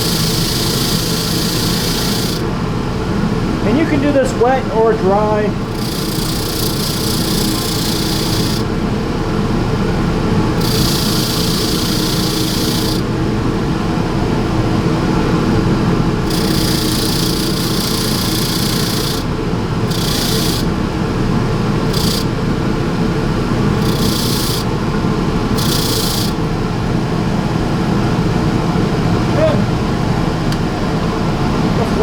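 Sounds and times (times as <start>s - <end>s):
wires scraping brush bristles: 0.0s - 2.4s, 10.6s - 13.0s, 19.9s - 20.7s, 21.9s - 22.3s, 23.8s - 24.7s
wire wheel motor humming: 0.0s - 27.7s.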